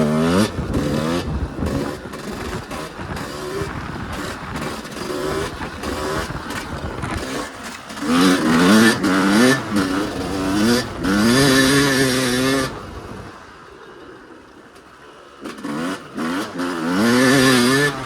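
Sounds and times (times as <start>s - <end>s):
dirt bike engine revving: 0.0s - 13.3s, 15.4s - 18.0s.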